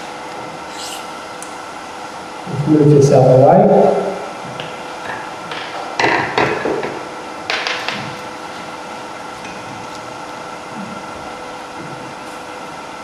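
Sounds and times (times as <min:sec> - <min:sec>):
steady machine hum: 0:00.0 - 0:13.0
tools knocking and clattering: 0:05.0 - 0:08.2.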